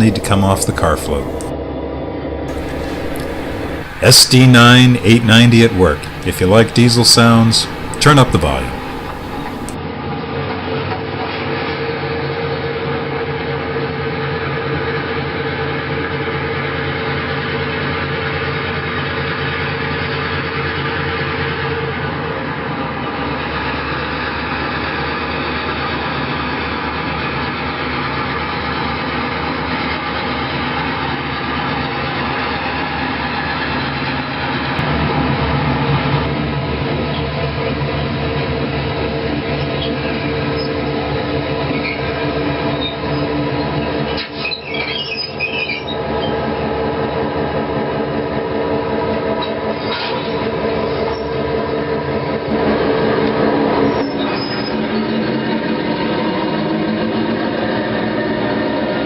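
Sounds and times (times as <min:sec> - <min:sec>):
model locomotive diesel engine sound: 0:00.0 - 0:01.5, 0:02.5 - 0:09.8.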